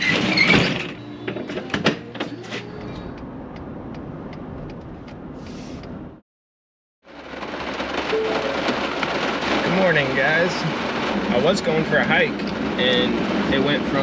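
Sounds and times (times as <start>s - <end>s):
rush of noise: 7.9s - 14.0s.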